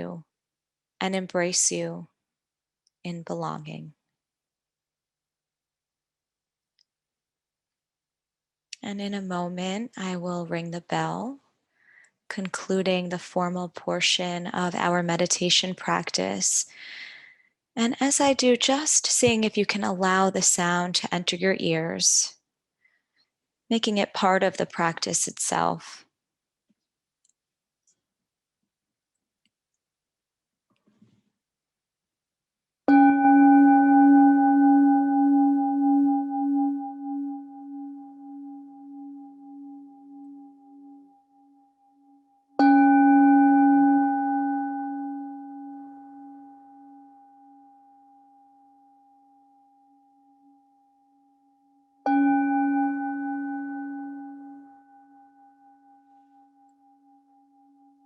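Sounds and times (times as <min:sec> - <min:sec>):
meditation bell ringing: 0:32.9 - 0:58.0.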